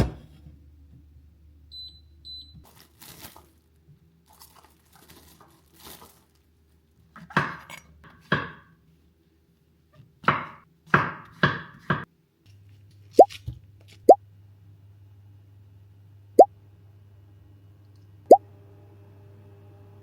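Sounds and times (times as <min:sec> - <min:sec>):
packaging rustling and crinkling: 0:02.6 - 0:06.8.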